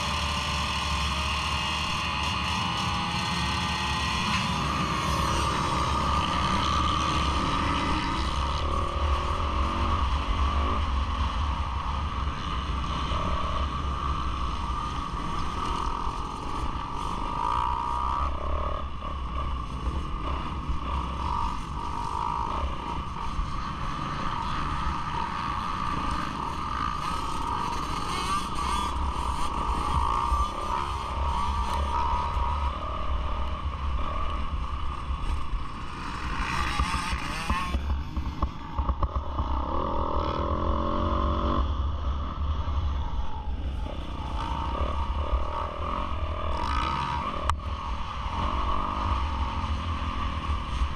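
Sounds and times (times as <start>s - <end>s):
motocross bike engines droning: 0.0s - 50.9s.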